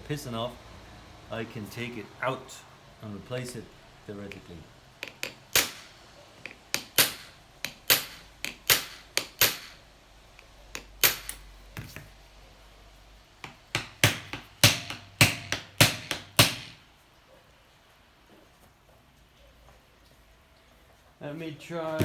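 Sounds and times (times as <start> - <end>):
hammer blows on metal engine: 4.3 - 5.9, 6.5 - 9.8.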